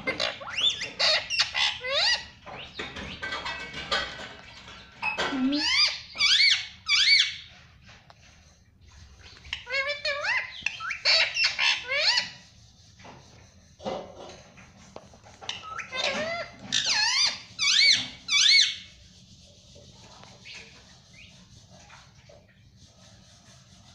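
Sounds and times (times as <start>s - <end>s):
parrot shrill calls: 5.5s - 7.5s, 15.6s - 18.8s.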